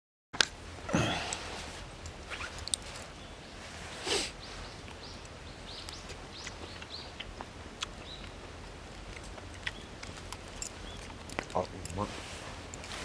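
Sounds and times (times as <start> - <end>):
outdoor hiss: 0.6 - 9.0
small birds chirping: 0.9 - 13.0.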